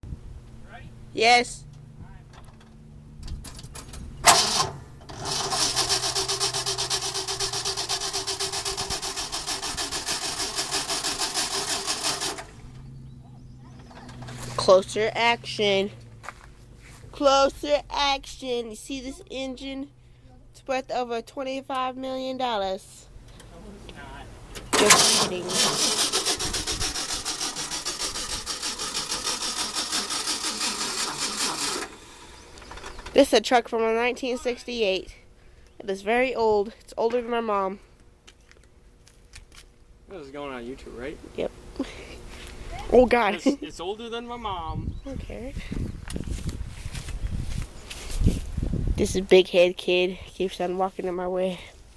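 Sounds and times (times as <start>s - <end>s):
starter motor cranking engine: 3.4s - 15.3s, 24.5s - 33.2s.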